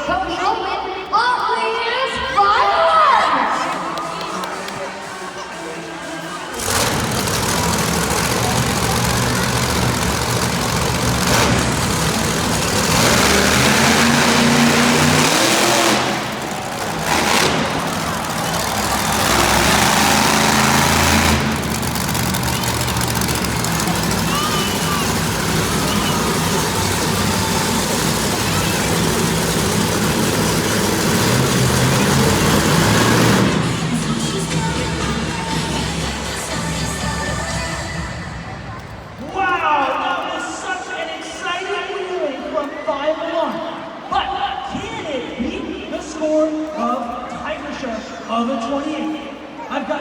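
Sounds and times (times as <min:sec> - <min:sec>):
toy truck engine revving: 0:06.5 - 0:34.2.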